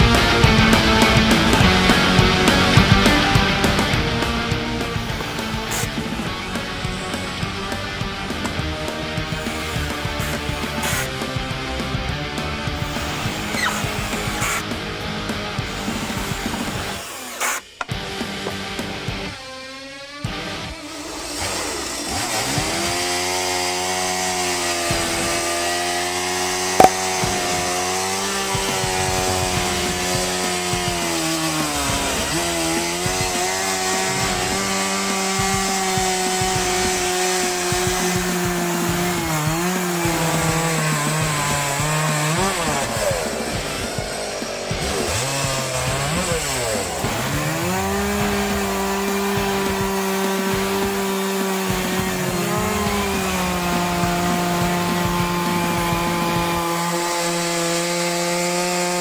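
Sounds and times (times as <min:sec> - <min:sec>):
chainsaw cutting wood: 0:00.0 - 0:59.0
sharp click: 0:26.8 - 0:27.2.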